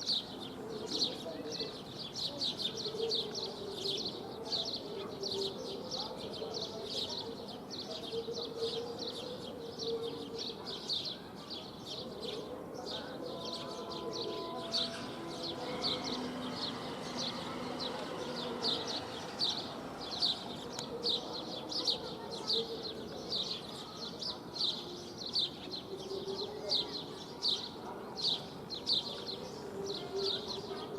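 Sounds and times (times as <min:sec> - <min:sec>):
sparrow chirping: 0:00.0 - 0:30.9.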